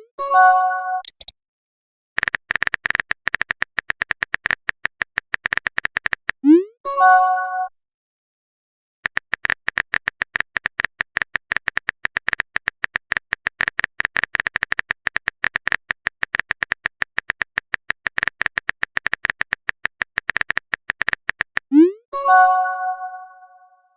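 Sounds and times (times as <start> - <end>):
phone keyboard typing taps: 1.0 - 1.3, 2.2 - 6.4, 9.0 - 21.7.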